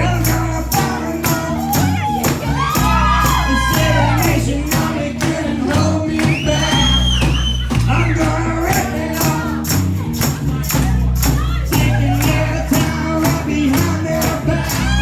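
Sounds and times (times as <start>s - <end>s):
person singing: 0.0s - 7.0s, 11.6s - 15.0s
live band playing: 0.0s - 15.0s.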